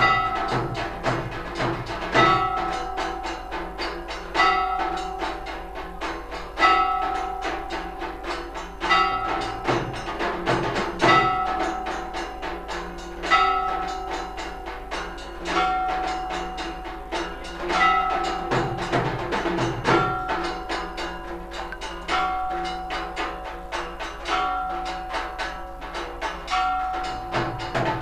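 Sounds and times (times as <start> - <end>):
drum and cymbal beats: 0.0 - 28.0
temple bell ringing: 0.0 - 28.0.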